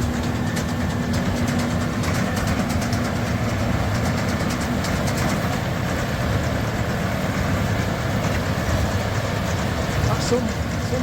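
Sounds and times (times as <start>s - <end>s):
baler mechanical clatter: 0.0s - 11.0s
tractor engine drone: 0.0s - 11.0s.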